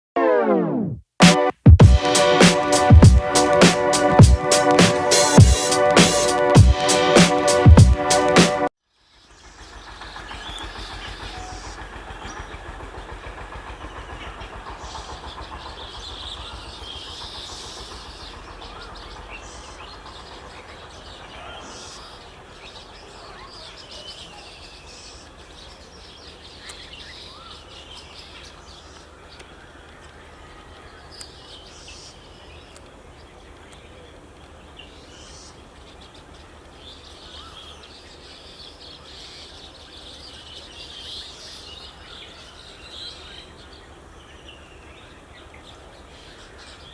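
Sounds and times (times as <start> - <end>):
train rumbling: 1.8 - 8.4, 9.2 - 33.1
open-air background noise: 2.0 - 46.9
birds chirping and calling: 14.2 - 30.2.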